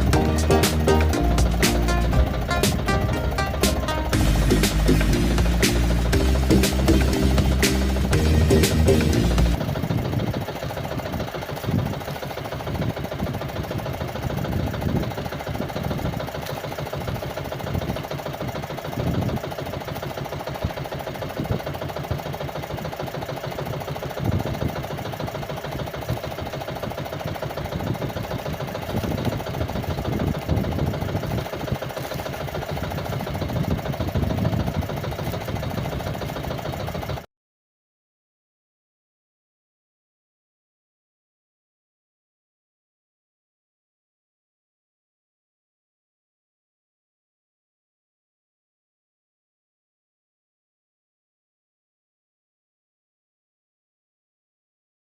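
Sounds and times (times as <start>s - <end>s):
small engine chugging: 0.0s - 37.3s.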